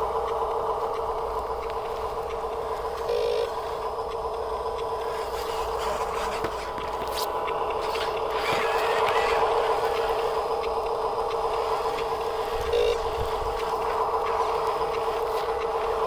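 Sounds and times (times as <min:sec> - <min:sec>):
motor humming: 0:00.0 - 0:16.0
light ticks: 0:00.2 - 0:03.1, 0:03.8 - 0:05.0.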